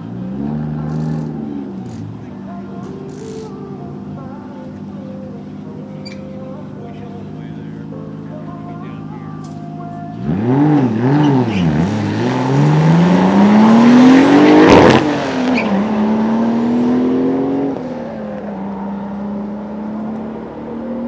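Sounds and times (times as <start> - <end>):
car engine revving and accelerating: 0.0 - 3.5, 10.1 - 21.0.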